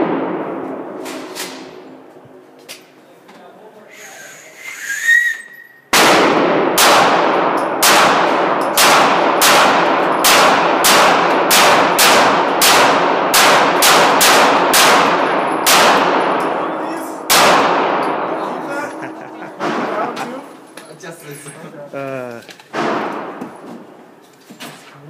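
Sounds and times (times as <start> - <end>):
handgun shots with ringing echo: 6.0 - 20.2.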